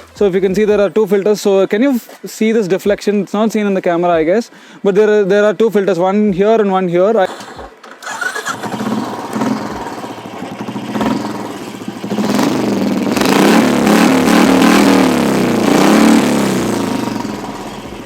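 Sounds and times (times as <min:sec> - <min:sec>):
motorcycle engine revving: 0:08.0 - 0:18.0.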